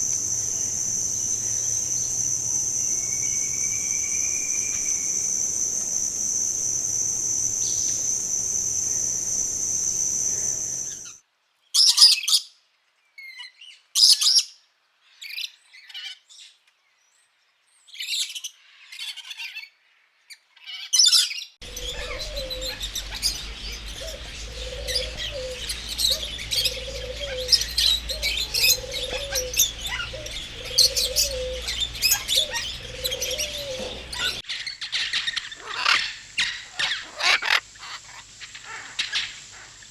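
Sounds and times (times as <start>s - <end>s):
bird chirps and calls: 0.0s - 11.1s, 21.6s - 34.4s
dense chorus of birds chirping: 0.0s - 11.2s, 21.6s - 34.5s
high buzz of insects: 0.0s - 11.2s, 21.6s - 34.4s.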